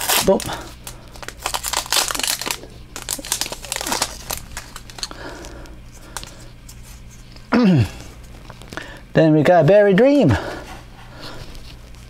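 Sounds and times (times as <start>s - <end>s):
plastic wrapper crinkling: 0.0s - 7.5s.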